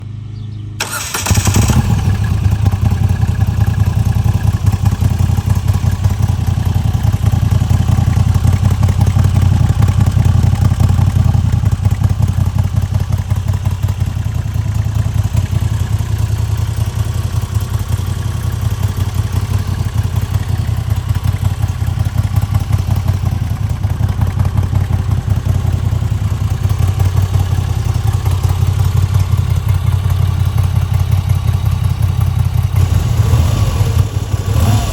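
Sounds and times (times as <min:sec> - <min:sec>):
motorcycle engine starting and idling: 0:00.1 - 0:34.9.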